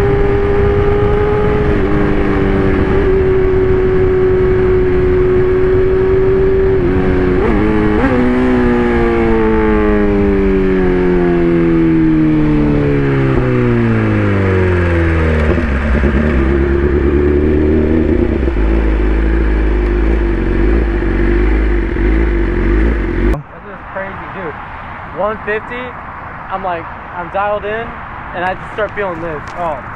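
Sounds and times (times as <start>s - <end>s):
motorcycle engine revving: 0.0s - 23.4s.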